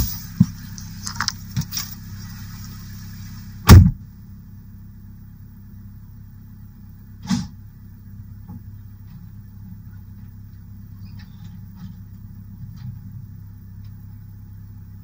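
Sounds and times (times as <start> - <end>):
car engine idling: 0.0 - 15.0
loud thump: 3.7 - 4.0.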